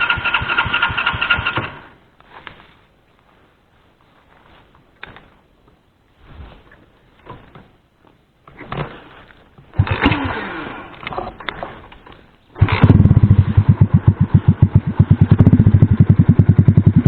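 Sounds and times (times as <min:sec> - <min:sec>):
moped engine kick-started: 0:00.0 - 0:02.0, 0:09.7 - 0:17.0.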